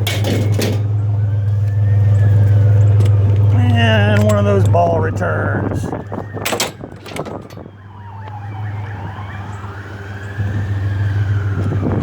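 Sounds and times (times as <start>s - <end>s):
metal clanks: 0.0s - 1.0s, 6.4s - 7.7s
emergency siren wailing: 0.0s - 12.0s
vehicle engine humming: 0.0s - 12.0s.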